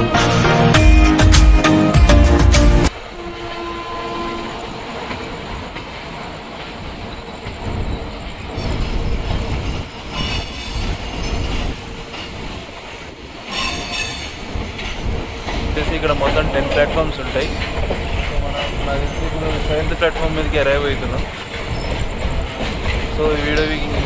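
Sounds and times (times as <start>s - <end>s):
train wheels rumbling and clattering: 4.5s - 24.0s
metallic wheel squeals: 13.5s - 14.4s, 21.5s - 24.0s.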